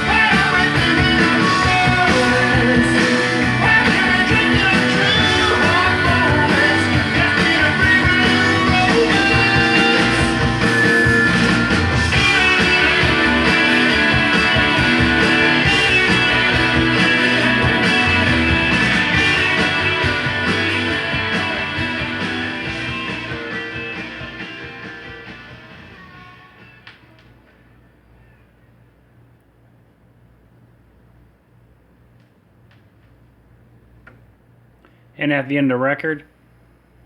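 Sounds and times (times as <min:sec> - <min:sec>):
rock music with guitar from vinyl: 0:00.0 - 0:27.4.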